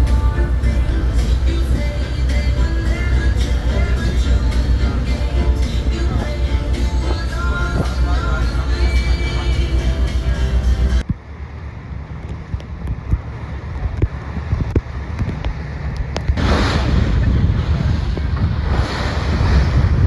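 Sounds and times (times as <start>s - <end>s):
sea water washing: 0.0s - 11.0s, 16.4s - 20.0s
water rushing surges: 0.0s - 11.0s, 15.8s - 20.0s
wind buffeting microphone: 0.0s - 11.1s, 12.0s - 20.0s.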